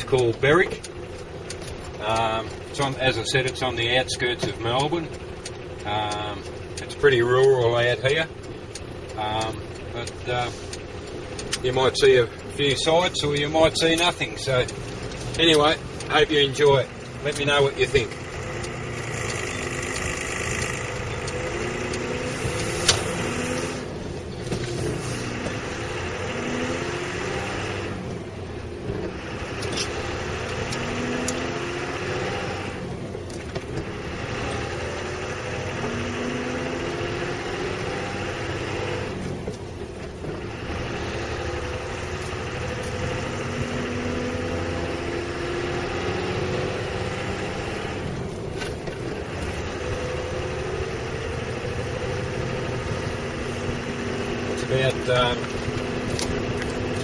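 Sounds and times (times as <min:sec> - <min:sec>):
diesel truck engine driving: 0:00.0 - 0:57.0
sharp click: 0:13.3 - 0:23.8.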